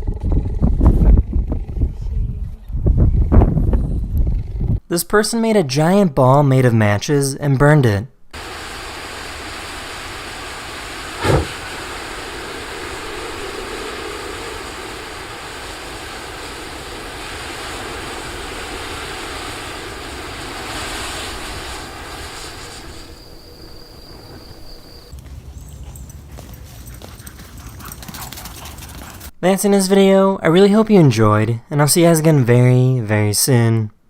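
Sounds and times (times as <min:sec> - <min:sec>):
flames hissing: 0:08.4 - 0:25.1
loud burst of flames: 0:08.4 - 0:25.1.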